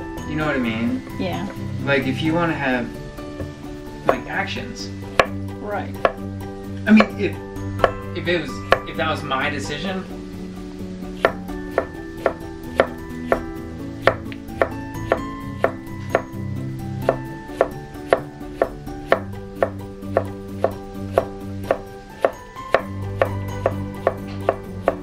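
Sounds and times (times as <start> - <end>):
soft background music: 0.0 - 25.0
knife chopping on cutting board: 5.2 - 5.4, 11.2 - 16.3, 17.0 - 25.0.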